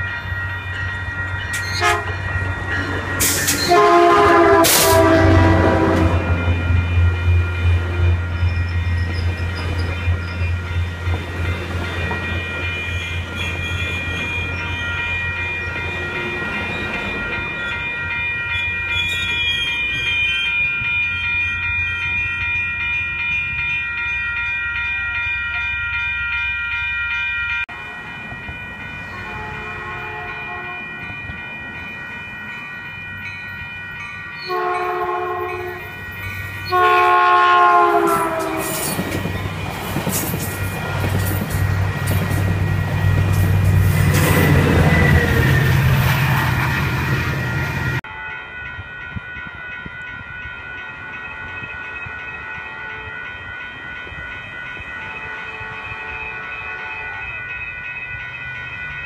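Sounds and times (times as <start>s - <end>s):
crossing warning bells ringing: 0.0s - 59.0s
train horn blasts: 1.6s - 2.3s, 3.2s - 6.8s, 29.1s - 30.9s, 34.4s - 36.0s, 36.6s - 39.0s, 48.0s - 48.6s, 50.9s - 53.2s, 55.0s - 57.4s.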